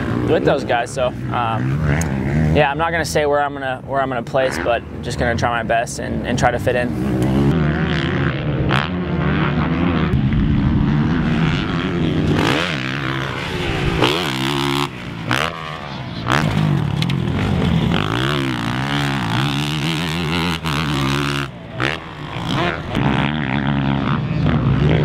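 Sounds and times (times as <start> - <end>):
motorbike engine revving hard: 7.0 - 25.0.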